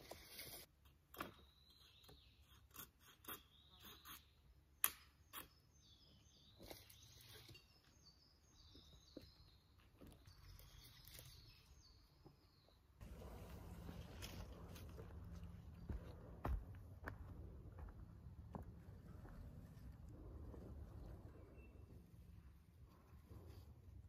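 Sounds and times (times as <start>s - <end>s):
birds chirping: 5.2s - 22.6s.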